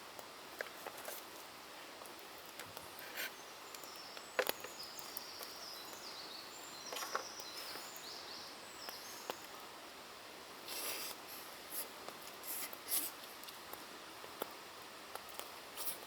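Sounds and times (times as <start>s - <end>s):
faint forest hush: 0.0s - 16.0s
small bird singing: 3.1s - 9.6s.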